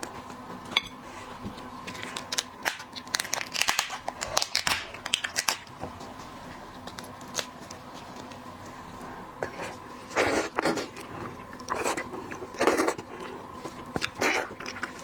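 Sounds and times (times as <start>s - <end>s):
lobster shell cracking: 2.0s - 5.8s.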